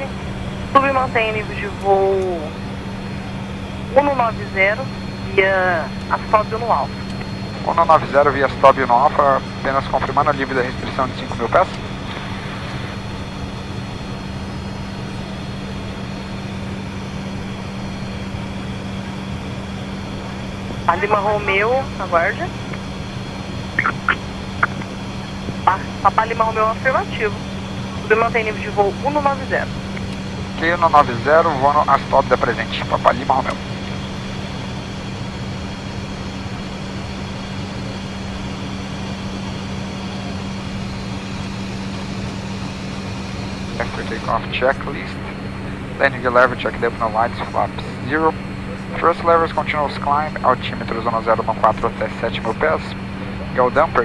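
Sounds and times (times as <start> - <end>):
jet engine and airflow rush: 0.0 - 54.0
steady low hum: 0.0 - 54.0
rushing airflow: 11.8 - 16.4.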